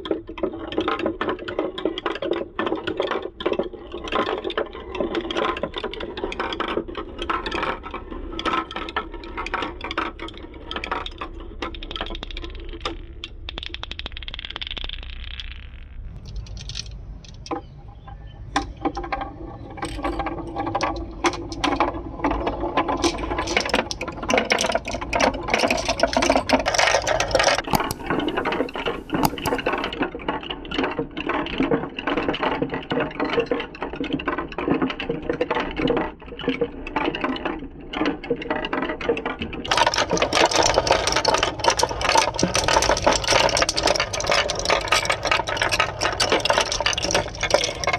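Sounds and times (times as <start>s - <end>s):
marbles clattering down a marble run: 0.0s - 17.7s, 18.5s - 29.9s, 38.4s - 47.9s
marbles rolling hiss: 13.5s - 17.4s, 27.4s - 29.9s.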